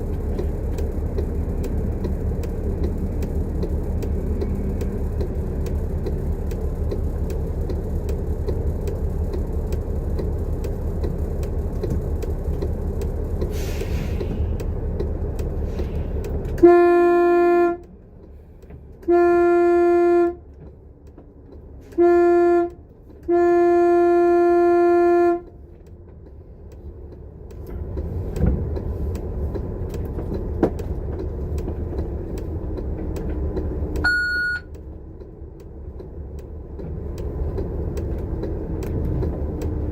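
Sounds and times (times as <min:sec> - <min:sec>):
bus running on road: 0:00.0 - 0:39.9
vehicle horn blasts: 0:16.6 - 0:17.9, 0:19.0 - 0:20.4, 0:21.9 - 0:25.5.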